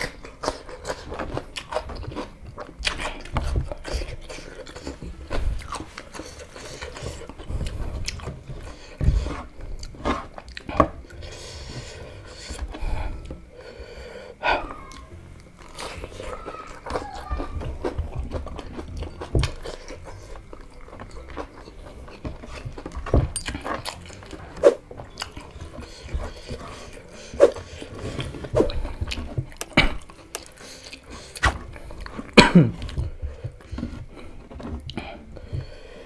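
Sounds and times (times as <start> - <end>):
huffing breaths: 10.6 - 14.8, 25.6 - 36.0.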